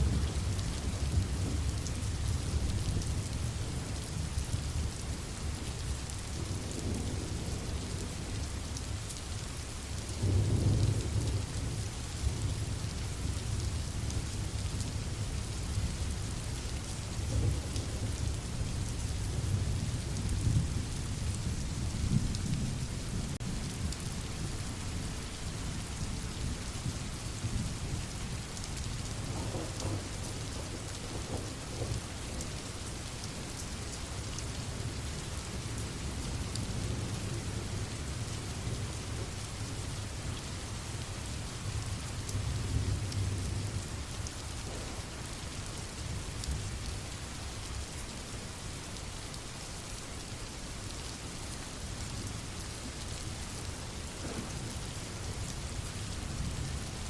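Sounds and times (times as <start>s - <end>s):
rain falling: 0.0s - 57.0s
rolling thunder: 29.2s - 32.4s, 44.6s - 45.1s, 54.2s - 54.7s.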